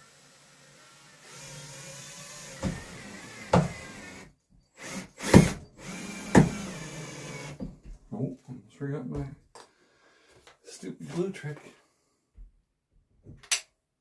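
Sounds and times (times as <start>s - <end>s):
power drill driving a screw: 0.0s - 7.6s
knocks of wood and tools: 2.6s - 2.9s, 3.5s - 3.9s.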